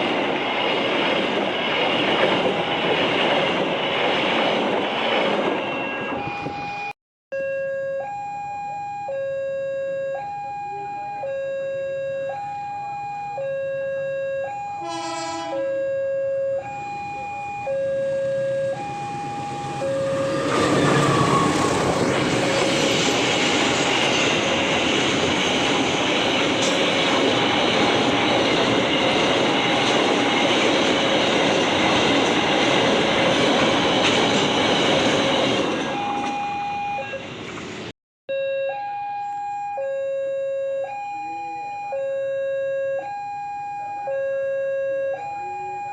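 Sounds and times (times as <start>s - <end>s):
train passing rushing: 0.0s - 6.9s, 16.7s - 37.9s
level crossing two-tone alarm: 5.8s - 21.5s, 35.8s - 37.2s, 38.3s - 45.9s
short horn blast: 14.8s - 15.7s.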